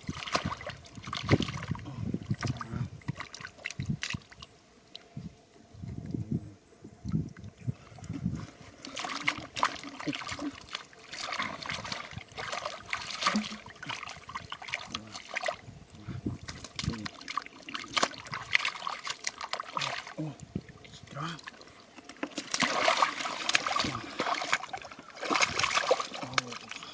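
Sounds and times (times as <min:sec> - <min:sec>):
shallow water splashing: 0:00.0 - 0:05.1, 0:07.0 - 0:26.9.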